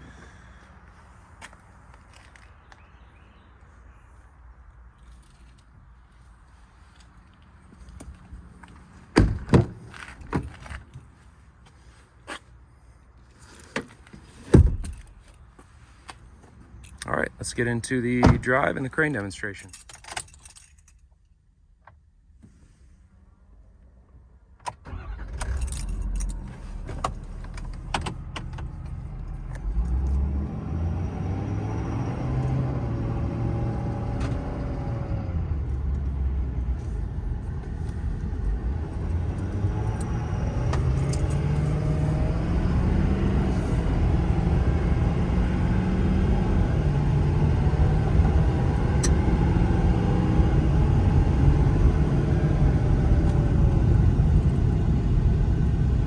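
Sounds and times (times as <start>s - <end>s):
diesel truck accelerating: 24.9s - 56.0s.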